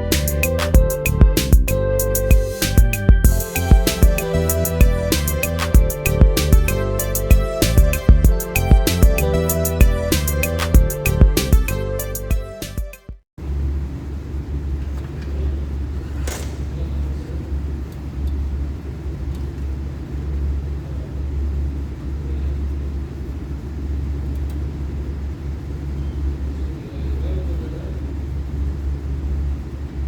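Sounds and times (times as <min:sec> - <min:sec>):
machinery humming and rumbling: 0:00.0 - 0:12.1.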